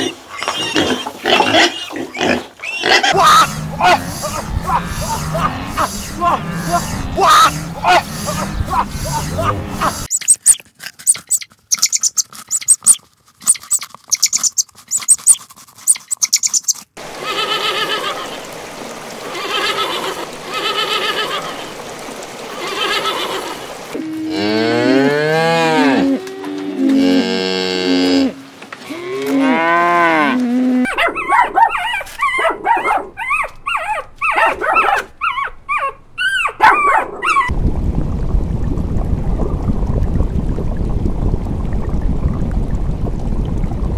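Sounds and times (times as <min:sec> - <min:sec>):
cows mooing: 0:00.8 - 0:10.0, 0:24.0 - 0:30.9
aquarium water rushing: 0:03.1 - 0:30.3, 0:37.5 - 0:43.9.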